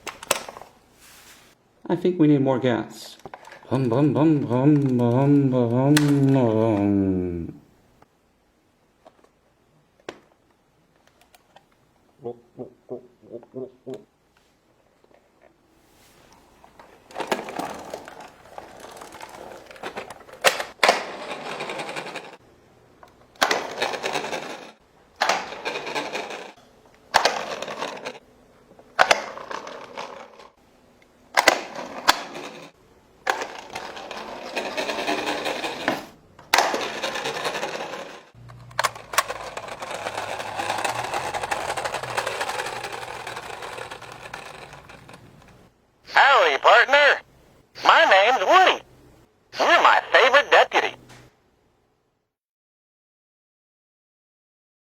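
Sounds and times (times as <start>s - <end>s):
toy car wheels rattling: 16.9s - 22.4s, 23.4s - 28.2s, 29.0s - 30.6s, 31.4s - 45.7s.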